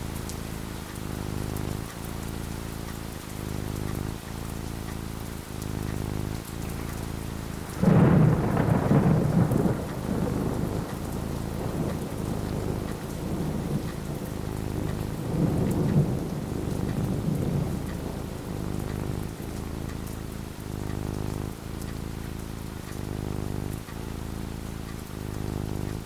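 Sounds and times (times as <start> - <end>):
steady rain: 0.0 - 26.0
thunder rumbling: 7.2 - 23.9.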